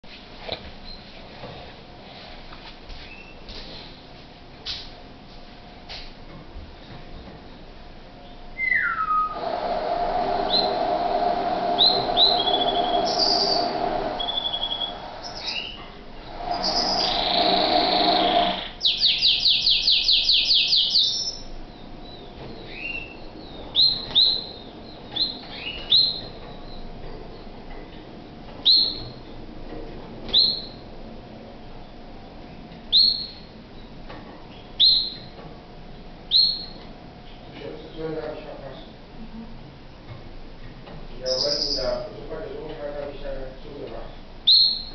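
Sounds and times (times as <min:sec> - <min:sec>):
canary singing: 0:08.6 - 0:09.6, 0:10.2 - 0:27.5, 0:28.6 - 0:29.2, 0:30.3 - 0:30.8, 0:32.9 - 0:33.9, 0:34.5 - 0:35.4, 0:36.3 - 0:37.4, 0:41.2 - 0:42.1, 0:44.4 - 0:44.9.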